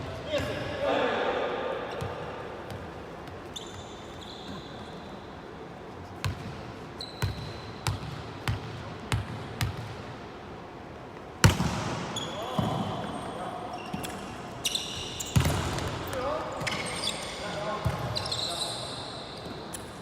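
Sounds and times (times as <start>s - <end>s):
volleyball bouncing on gym floor: 7.2s - 10.1s, 11.4s - 12.9s, 15.2s - 16.8s.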